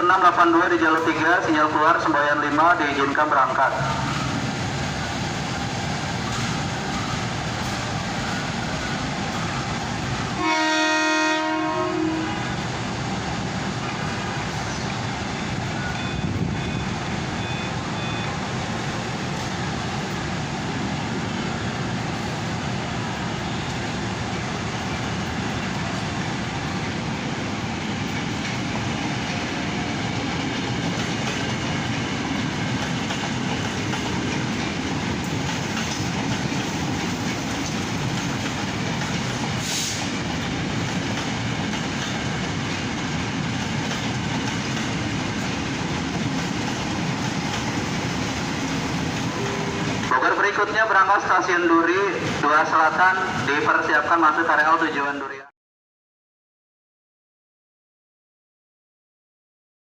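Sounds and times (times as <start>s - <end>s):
train rumbling and wheel clatter: 0.0s - 55.4s
train horn blast: 10.4s - 12.5s, 49.4s - 49.9s.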